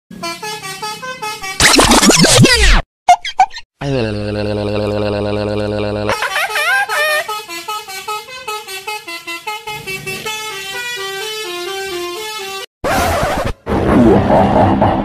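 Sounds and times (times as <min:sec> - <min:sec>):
multi-tone musical bus horn: 0:00.1 - 0:01.6, 0:06.5 - 0:12.7.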